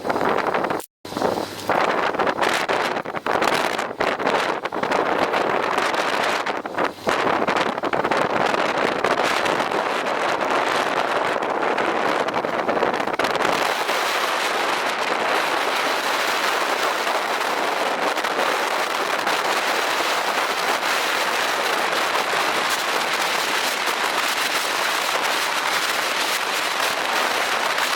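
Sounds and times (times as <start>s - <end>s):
heavy rain hissing: 13.5s - 27.9s.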